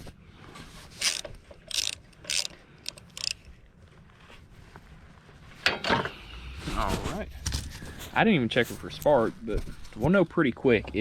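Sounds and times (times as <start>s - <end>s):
hand tools clicking and rattling: 0.9s - 3.5s.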